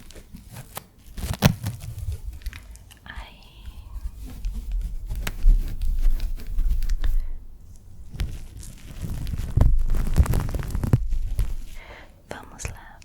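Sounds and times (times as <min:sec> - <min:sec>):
low rumble: 0:01.7 - 0:05.3.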